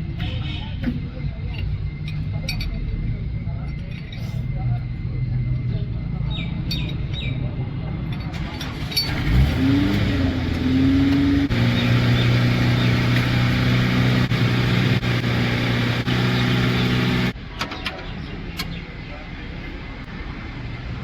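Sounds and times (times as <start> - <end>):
motor spinning up and humming: 9.1 - 17.4.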